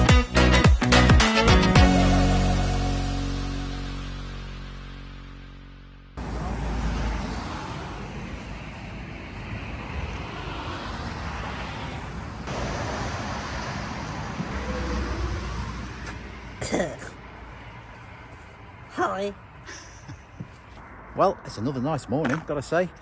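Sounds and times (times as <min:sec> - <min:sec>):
road traffic rumble: 0:06.2 - 0:23.0.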